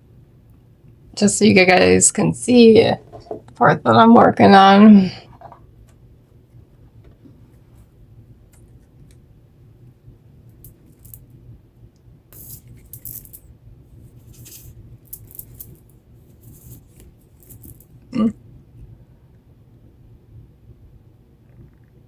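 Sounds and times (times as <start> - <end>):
low steady hum: 0.0 - 22.0
small pieces clicking and rustling: 10.6 - 11.2, 12.4 - 13.4, 14.2 - 18.0.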